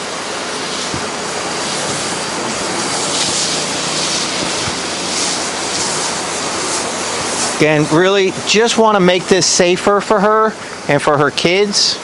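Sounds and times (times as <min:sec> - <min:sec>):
pressure washer spraying hiss: 0:00.0 - 0:11.9.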